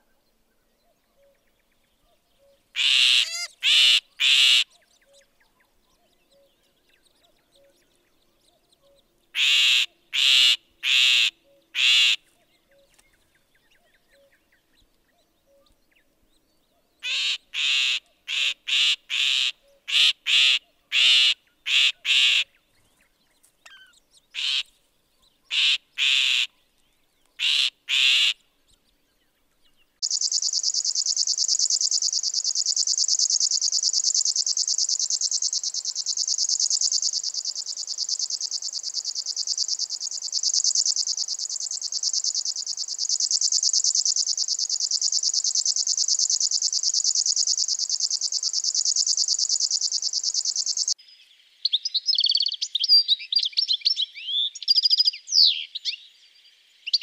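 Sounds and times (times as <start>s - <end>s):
bird giving harsh rasping calls: 2.8s - 4.7s, 9.4s - 12.2s, 17.0s - 22.5s, 24.4s - 24.7s, 25.5s - 26.5s, 27.4s - 28.4s
bird buzzing song: 29.2s - 51.0s.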